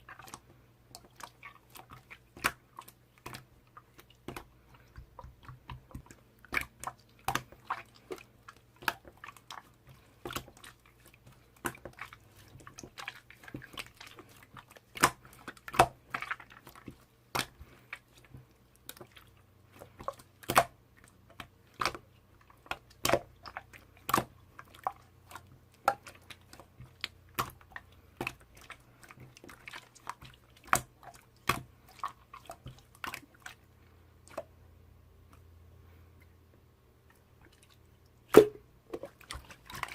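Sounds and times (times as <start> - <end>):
slime squished by hand: 0.0 - 22.0.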